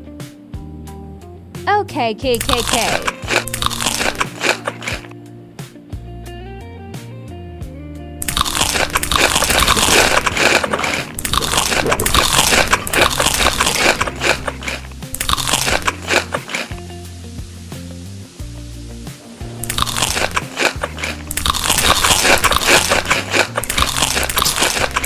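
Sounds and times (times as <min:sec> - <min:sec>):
crunchy food being chewed: 0:02.4 - 0:05.1, 0:08.2 - 0:16.9, 0:19.6 - 0:25.0.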